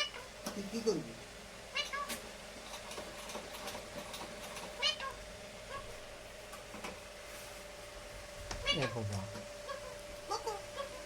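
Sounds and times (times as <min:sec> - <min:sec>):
steady hum: 0:00.0 - 0:11.0
high meow-like animal call: 0:08.6 - 0:11.0.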